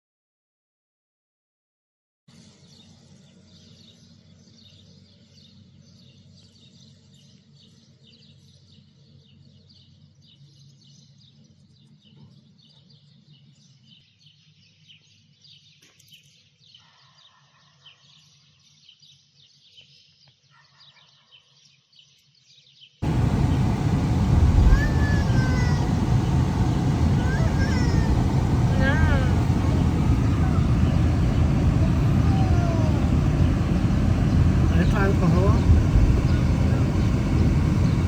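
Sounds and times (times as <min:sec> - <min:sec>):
low background rumble: 0:23.0 - 0:38.0
small birds chirping: 0:23.0 - 0:38.0.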